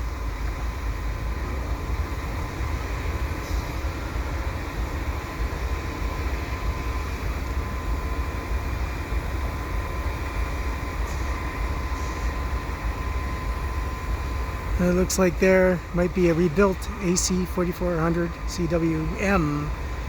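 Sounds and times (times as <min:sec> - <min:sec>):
locomotive engines idling: 0:00.0 - 0:20.0
thin constant whine: 0:00.0 - 0:20.0.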